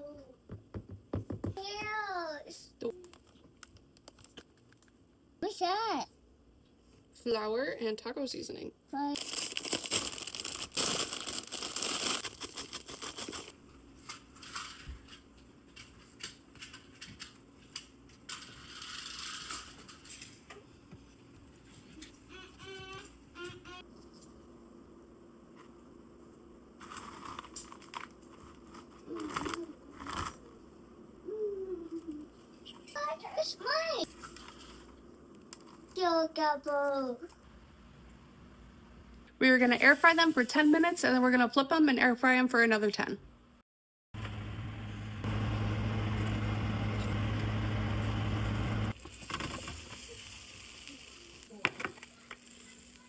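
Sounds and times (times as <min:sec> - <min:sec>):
chip bag crinkling: 0:09.1 - 0:13.7
chips crunching: 0:09.2 - 0:13.6
air fryer fan hum: 0:44.2 - 0:49.8.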